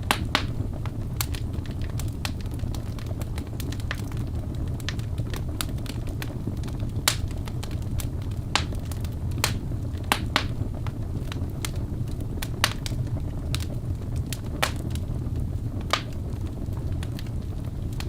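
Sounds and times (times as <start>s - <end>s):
fire crackling and popping: 0.0s - 18.0s
low rumble of flame: 0.0s - 18.0s.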